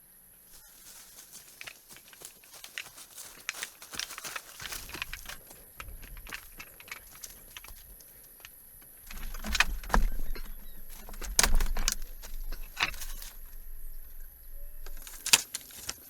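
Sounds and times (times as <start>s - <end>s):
clicks taps and knocks: 2.8s - 15.5s.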